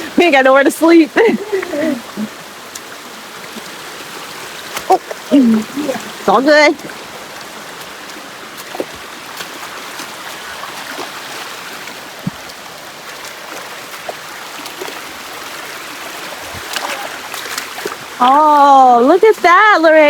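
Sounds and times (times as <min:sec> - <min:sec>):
flowing river water: 0:00.0 - 0:20.0.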